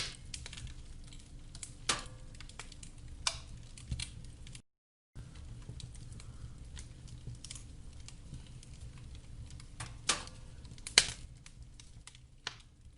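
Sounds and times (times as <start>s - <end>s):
loud sharp wood snaps: 0.0s - 0.7s, 1.6s - 4.1s, 9.8s - 11.3s, 12.0s - 12.7s
fire rumbling: 0.0s - 4.6s, 5.2s - 12.9s
small fire crackles: 0.0s - 4.6s, 5.2s - 12.9s.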